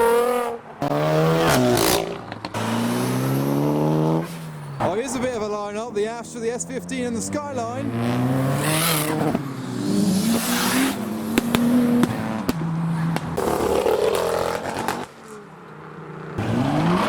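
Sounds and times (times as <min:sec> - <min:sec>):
car engines revving: 0:00.0 - 0:17.0
sharp cracks: 0:10.5 - 0:15.4.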